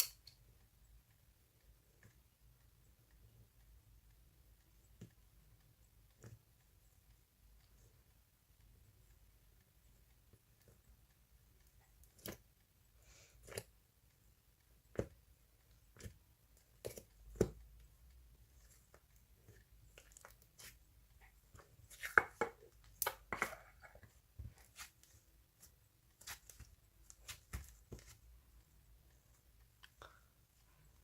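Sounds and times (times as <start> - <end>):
small taps and knocks: 21.5 - 28.3.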